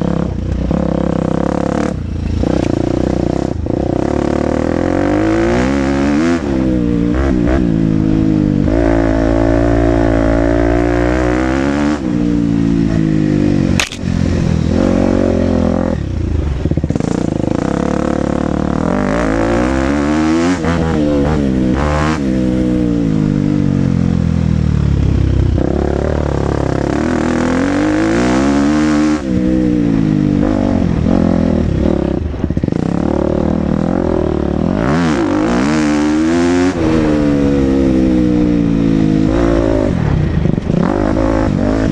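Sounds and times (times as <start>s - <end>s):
motocross engine revving: 0.7s - 23.4s, 25.6s - 41.9s
sharp knock: 13.8s - 14.1s.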